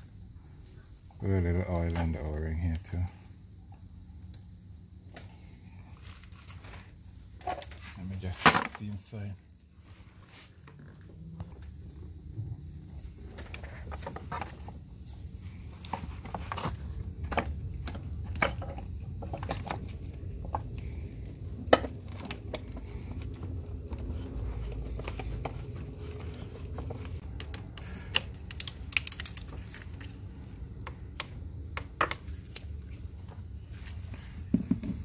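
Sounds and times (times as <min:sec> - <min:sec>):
low steady rumble: 0:09.0 - 0:35.0.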